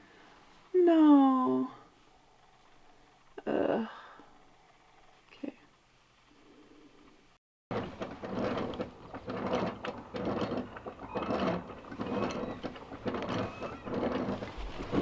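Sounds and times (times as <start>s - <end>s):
mechanical clattering and clicking: 7.7s - 15.0s.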